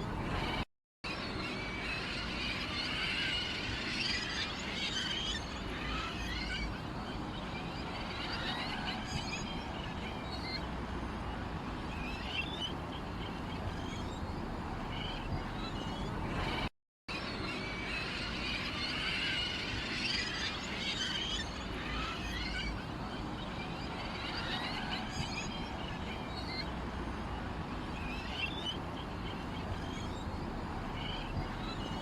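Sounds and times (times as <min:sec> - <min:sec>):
small birds chirping: 0:01.2 - 0:32.0
low background rumble: 0:28.8 - 0:32.0.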